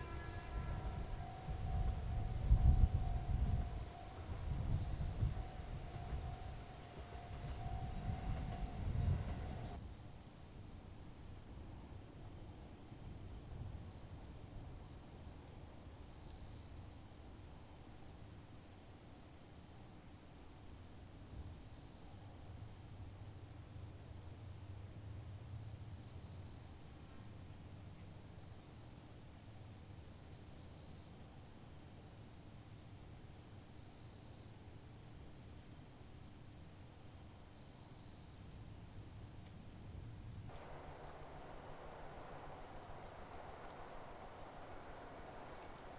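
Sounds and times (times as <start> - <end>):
insects buzzing trill: 0.0 - 17.8.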